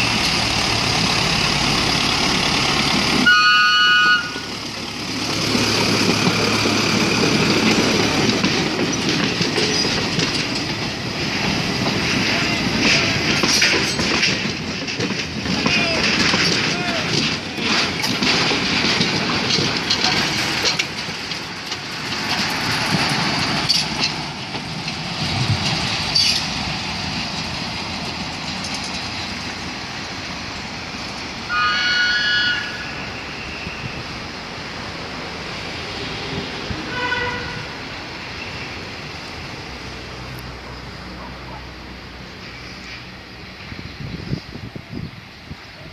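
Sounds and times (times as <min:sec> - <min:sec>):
train wheels clattering over rail joints: 0:00.0 - 0:03.3, 0:03.9 - 0:31.5
train horn: 0:03.2 - 0:04.5, 0:31.5 - 0:33.1, 0:36.9 - 0:37.8.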